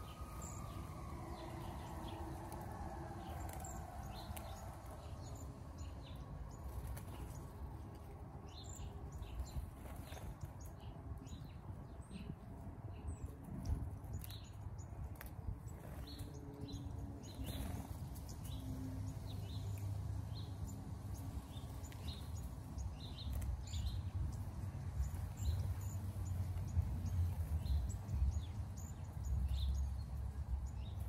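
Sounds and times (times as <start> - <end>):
lower bird chirps: 0.0 - 7.5
small birds calling: 0.0 - 31.0.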